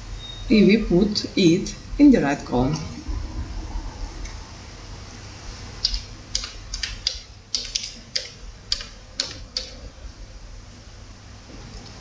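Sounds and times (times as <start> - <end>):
keyboard keys clicking: 5.8 - 9.8.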